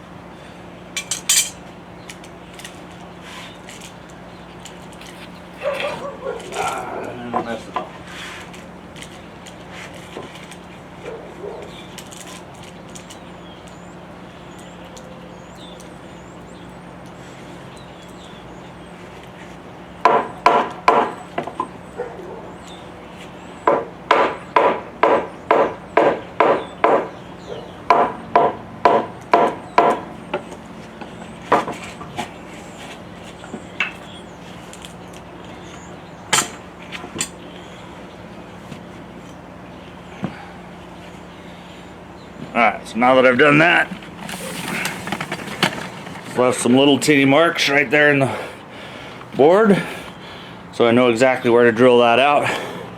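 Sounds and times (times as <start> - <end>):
hammer knocking on wooden board: 20.1 - 21.5, 23.7 - 27.1, 27.9 - 30.4.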